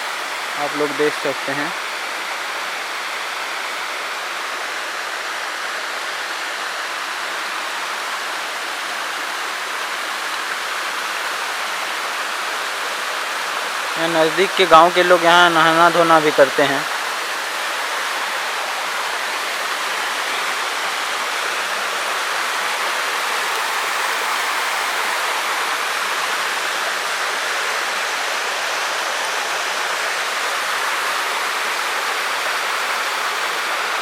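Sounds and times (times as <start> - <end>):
waterfall splashing into pool: 0.0 - 34.0.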